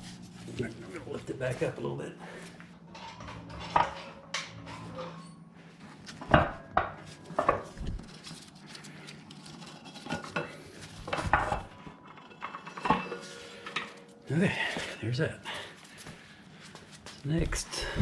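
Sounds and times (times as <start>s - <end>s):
metal tools clanking: 2.4s - 5.5s, 9.5s - 15.6s.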